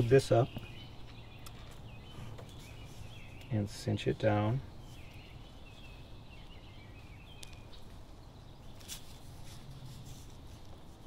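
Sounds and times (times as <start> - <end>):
small bird calling: 0.0 - 11.0
brief rustle: 8.8 - 11.0.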